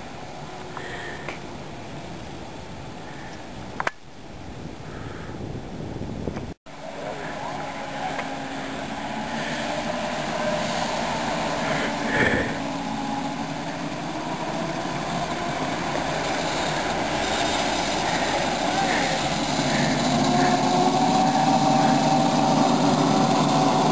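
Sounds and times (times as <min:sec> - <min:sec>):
motor running: 0:06.8 - 0:23.9.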